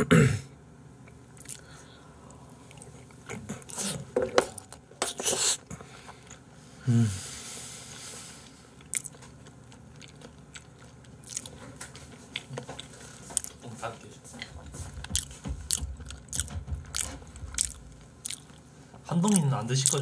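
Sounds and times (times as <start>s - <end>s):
person chewing with wet smacks: 1.1s - 5.6s, 8.8s - 20.0s.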